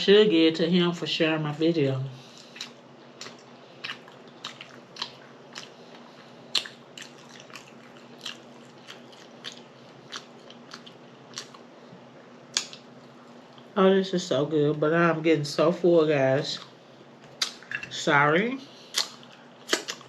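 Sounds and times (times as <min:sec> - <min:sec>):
person chewing crunchy food: 0:02.2 - 0:13.7, 0:18.8 - 0:20.0.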